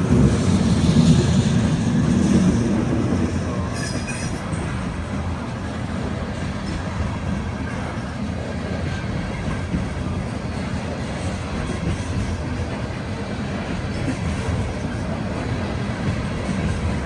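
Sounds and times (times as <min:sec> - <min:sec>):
train cars rolling on rails: 0:00.0 - 0:17.0.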